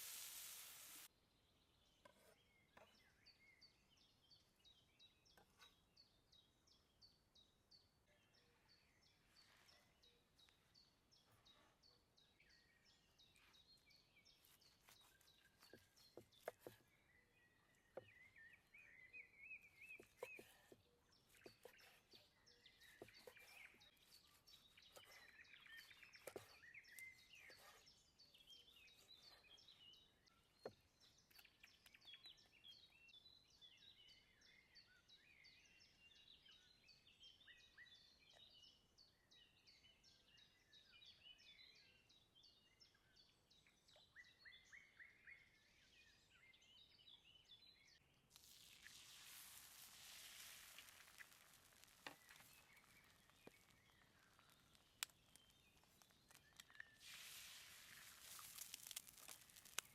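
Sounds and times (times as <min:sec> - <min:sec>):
food sizzling on hot stone: 0:00.0 - 0:01.1, 0:48.3 - 0:59.9
faint birdsong chirps: 0:00.0 - 0:59.9.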